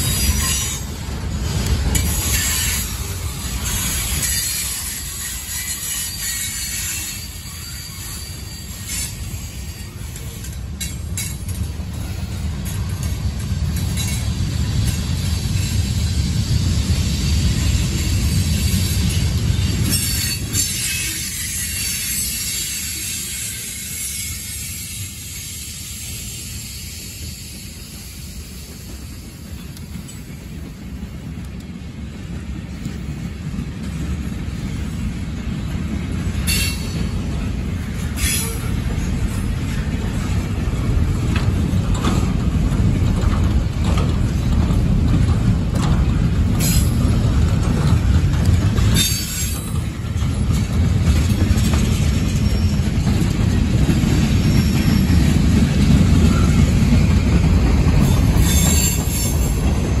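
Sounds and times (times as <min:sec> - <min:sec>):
train wheels rumbling on rail: 0:00.0 - 1:00.0
high wheel squeals: 0:02.0 - 0:10.6, 0:17.6 - 0:28.0, 0:36.4 - 0:40.3, 0:48.8 - 0:50.6, 0:51.4 - 0:56.8, 0:58.0 - 0:59.7.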